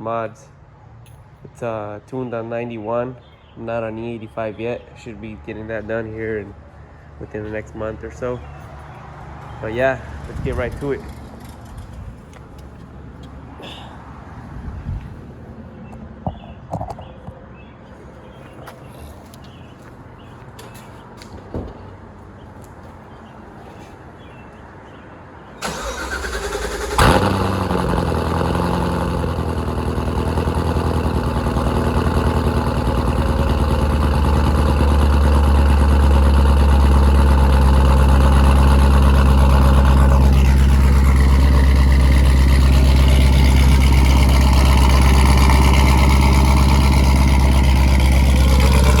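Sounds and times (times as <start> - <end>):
car engine idling loudly: 25.6 - 49.0
starter cranking: 31.6 - 49.0.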